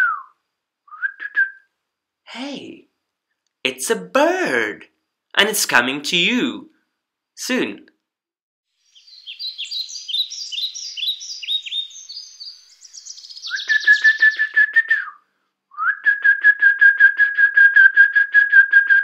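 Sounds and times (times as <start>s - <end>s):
bird trilled whistle: 0.0s - 1.7s, 8.9s - 19.0s
high falling bird chirps: 8.7s - 14.7s.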